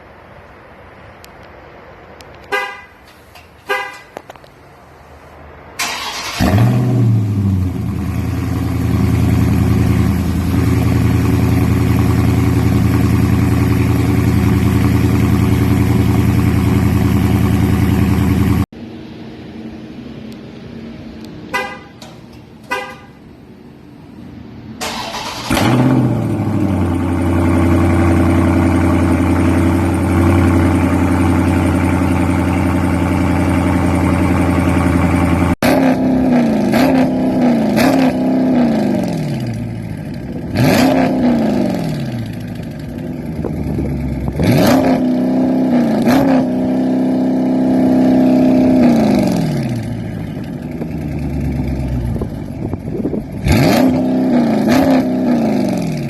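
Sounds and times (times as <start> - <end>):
car engine revving: 5.8 - 18.7, 24.8 - 56.0.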